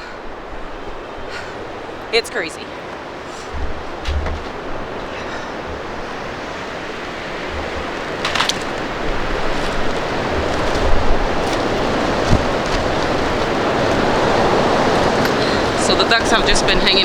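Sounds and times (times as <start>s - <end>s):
wind buffeting microphone: 0.0s - 17.0s
short scraping: 3.2s - 15.5s.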